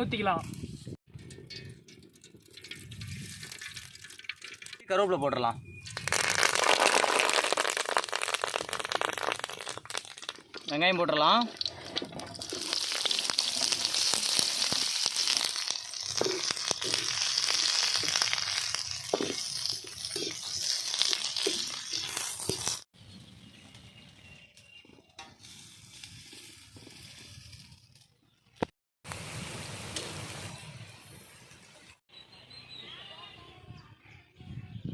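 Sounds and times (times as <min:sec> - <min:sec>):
onions sizzling in hot oil: 0:06.0 - 0:10.3, 0:11.5 - 0:22.9.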